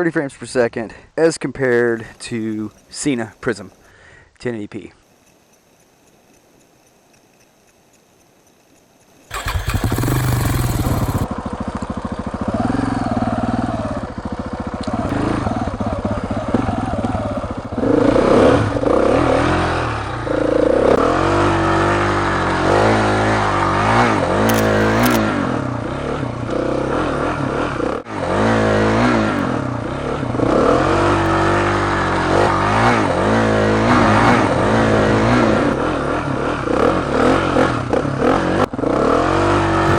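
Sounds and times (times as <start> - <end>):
motorcycle engine revving: 9.3 - 39.9.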